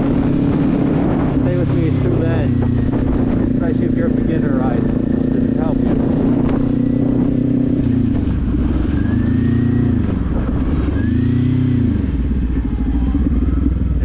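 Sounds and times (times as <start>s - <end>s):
motorcycle engine revving: 0.0s - 14.0s
wind rumble on microphone: 0.0s - 14.0s.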